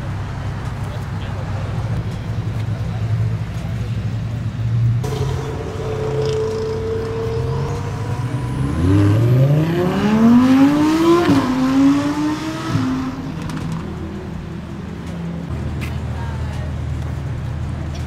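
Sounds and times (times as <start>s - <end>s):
car engine revving: 5.0s - 15.6s.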